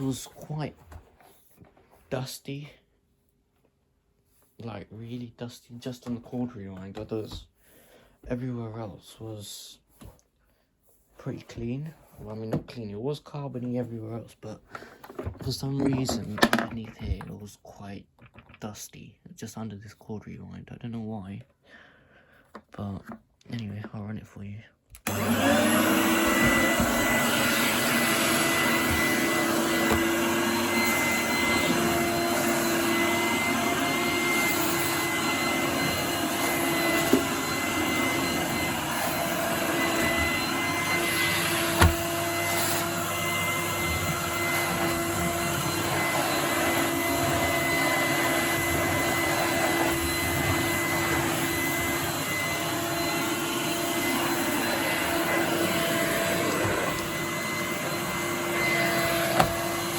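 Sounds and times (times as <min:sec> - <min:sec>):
vacuum cleaner motor hum: 0:25.0 - 0:59.9.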